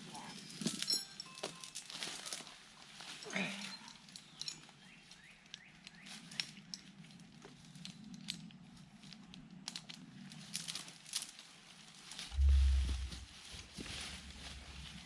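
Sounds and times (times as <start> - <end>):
chain clinking and rustling: 0.0 - 13.4.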